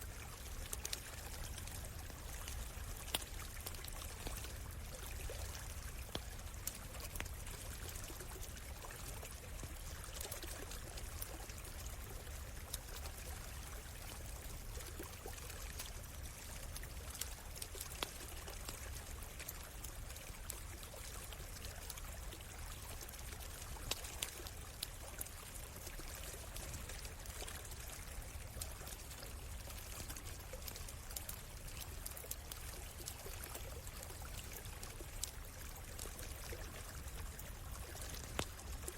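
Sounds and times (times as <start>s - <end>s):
campfire crackles: 0.0s - 38.9s
stream flowing and trickling: 0.0s - 38.9s.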